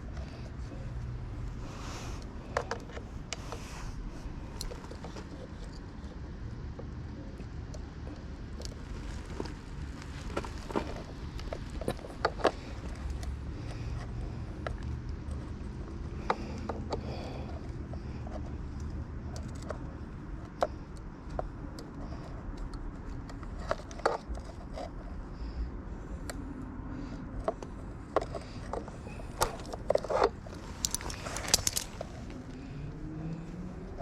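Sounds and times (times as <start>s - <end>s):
steady low rumble: 0.0s - 23.6s
metallic clicks of hand tools: 28.2s - 32.4s.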